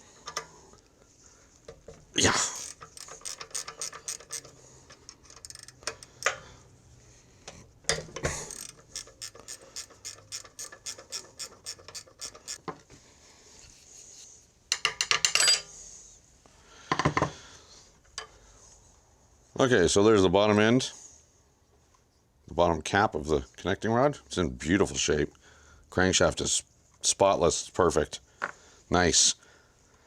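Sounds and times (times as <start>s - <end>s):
socket ratchet clicking: 2.4s - 6.4s, 7.9s - 12.6s
metal clinks: 2.5s - 6.4s, 7.9s - 12.6s.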